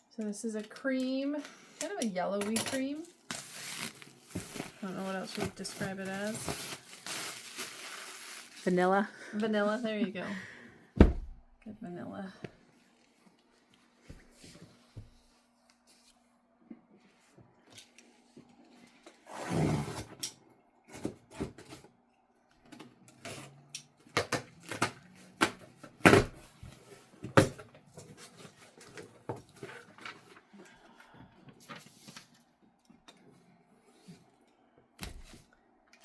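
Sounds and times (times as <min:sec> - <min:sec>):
fabric and packaging rustling: 0:02.8 - 0:10.1.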